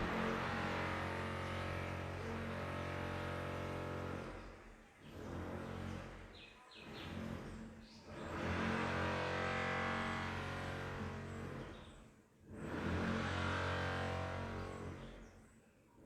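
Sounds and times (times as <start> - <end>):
low droning hum: 0.0 - 1.8.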